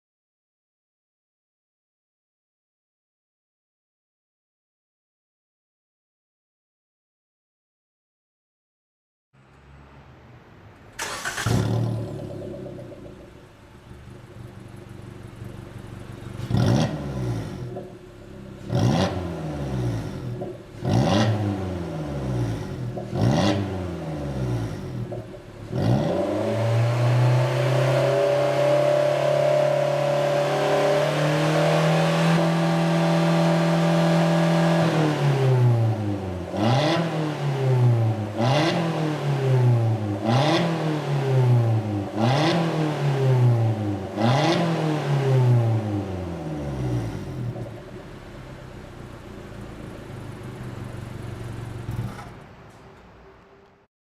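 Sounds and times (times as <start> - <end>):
car engine revving: 11.0 - 52.5.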